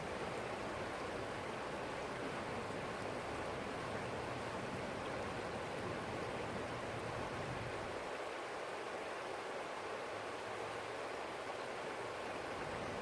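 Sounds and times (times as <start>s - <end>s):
forest stream flowing: 0.0s - 13.0s.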